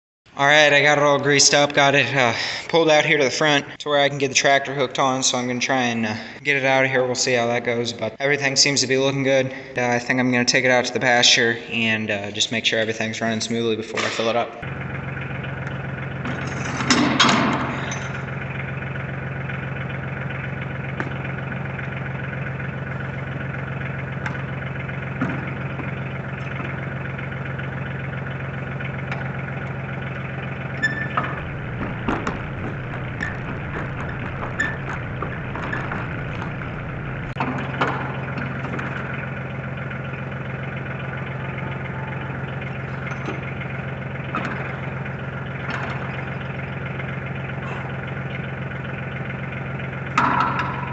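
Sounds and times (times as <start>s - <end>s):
tractor engine idling: 14.6s - 50.9s
low rumble: 30.4s - 37.4s
knocks and clunks: 31.0s - 37.4s.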